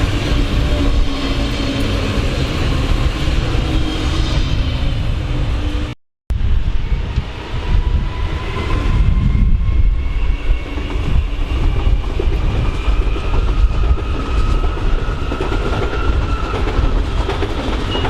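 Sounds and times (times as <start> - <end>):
train wheels clattering on rails: 10.5 - 18.0.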